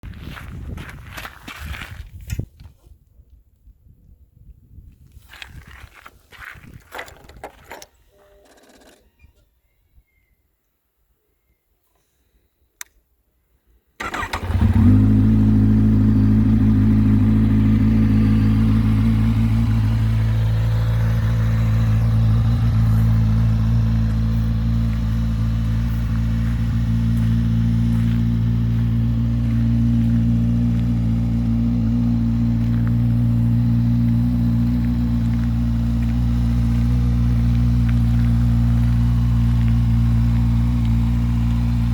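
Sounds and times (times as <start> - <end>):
click: 12.8 - 13.0
motorcycle engine idling: 14.0 - 41.9.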